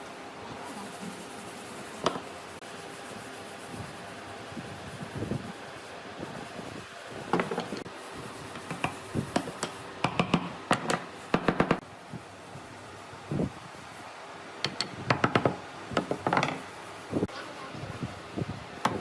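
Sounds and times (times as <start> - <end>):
wooden pieces knocking: 7.3 - 7.8, 14.7 - 16.7.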